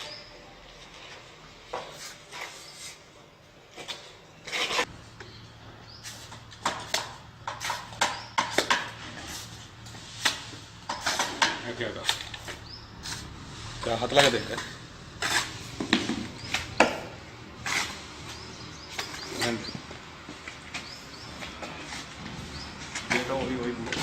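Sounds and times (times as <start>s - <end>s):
tools knocking and scraping tiles: 6.2s - 19.9s.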